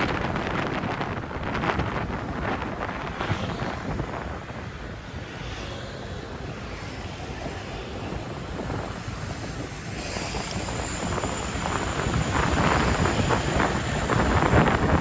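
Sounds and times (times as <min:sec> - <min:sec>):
vehicle road noise: 0:00.0 - 0:15.0
wind buffeting microphone: 0:00.0 - 0:15.0
faint high whine: 0:06.9 - 0:15.0.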